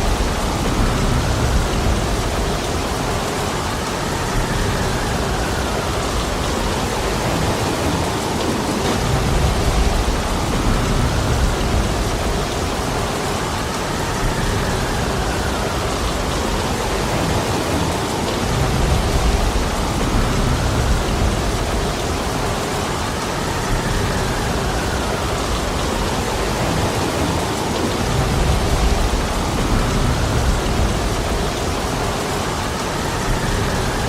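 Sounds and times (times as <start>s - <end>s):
low rumbling: 0.0s - 7.4s, 8.8s - 17.2s, 18.5s - 23.0s
heavy rainfall: 0.0s - 34.0s.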